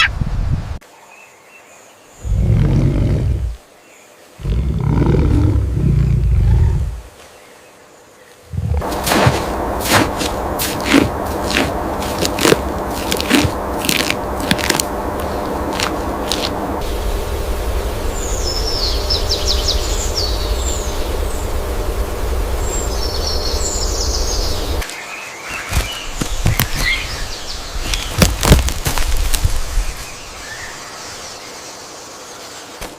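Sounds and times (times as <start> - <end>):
steady low rumble: 4.4 - 7.1, 8.5 - 24.9.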